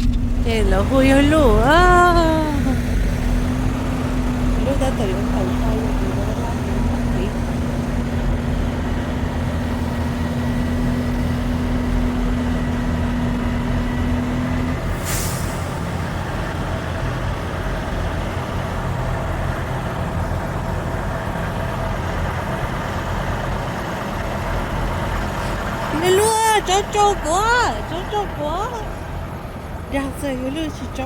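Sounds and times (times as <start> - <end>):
steady hum: 0.0 - 7.7
truck engine and road noise: 0.0 - 31.0
air brake hiss: 14.9 - 15.8.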